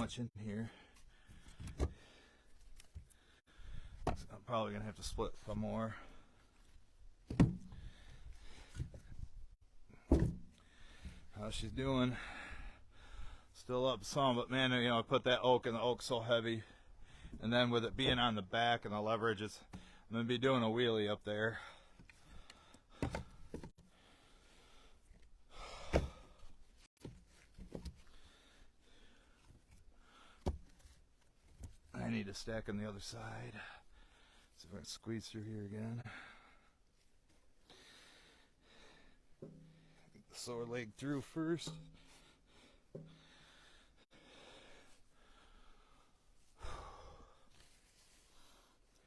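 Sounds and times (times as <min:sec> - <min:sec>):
man breathing and sighing: 0:00.0 - 0:04.4, 0:05.2 - 0:06.9, 0:07.5 - 0:13.6, 0:16.6 - 0:17.5, 0:21.4 - 0:31.0, 0:33.3 - 0:34.7, 0:35.8 - 0:40.3, 0:41.7 - 0:49.0.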